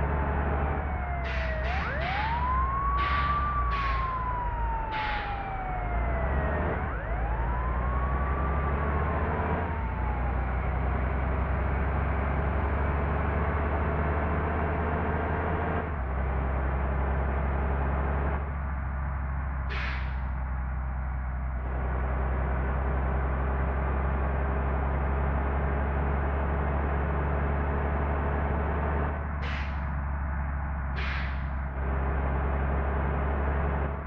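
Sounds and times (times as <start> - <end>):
low engine drone: 0.0 - 14.9, 16.0 - 34.0
siren wailing: 0.0 - 14.9.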